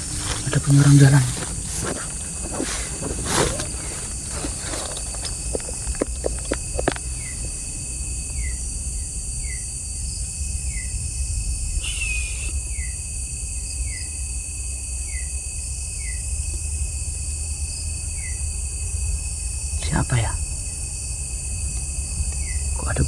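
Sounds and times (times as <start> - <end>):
cricket trilling: 0.0 - 23.0
short falling chirp: 11.8 - 12.6.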